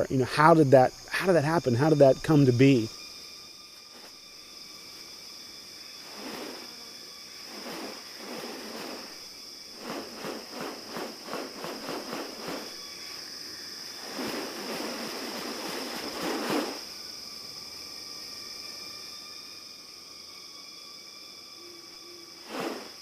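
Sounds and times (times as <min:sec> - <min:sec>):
insects droning: 0:00.0 - 0:23.0
loud rustling burst: 0:06.0 - 0:06.8, 0:07.4 - 0:12.8, 0:14.0 - 0:16.8, 0:22.4 - 0:23.0.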